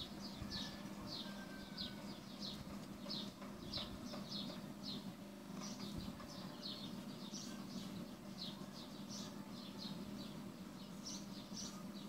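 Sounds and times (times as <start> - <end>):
small bird chirping: 0.0 - 12.0
steady low hum: 0.0 - 12.0.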